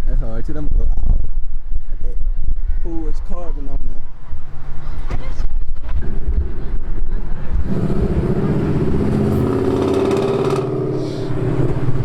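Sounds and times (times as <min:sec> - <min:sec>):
car engine droning: 0:06.0 - 0:12.0.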